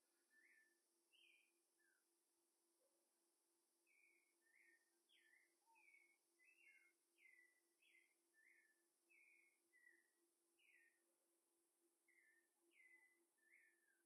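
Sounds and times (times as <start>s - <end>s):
bird chirping faintly: 3.9s - 11.0s.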